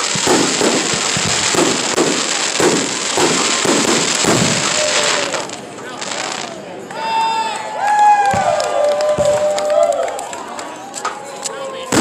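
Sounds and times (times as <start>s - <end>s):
fireworks booming bursts: 0.0s - 6.6s, 8.3s - 9.6s
fireworks crackling: 0.0s - 6.8s, 8.3s - 10.3s, 10.9s - 12.0s.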